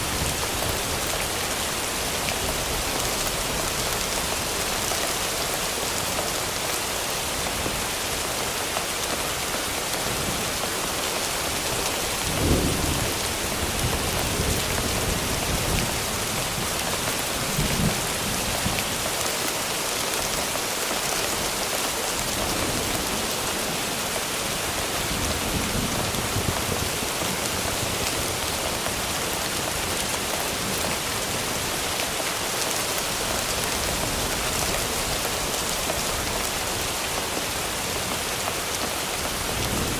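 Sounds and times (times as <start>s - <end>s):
steady rain hiss: 0.0s - 39.9s
low thunder rumbling: 11.9s - 16.7s.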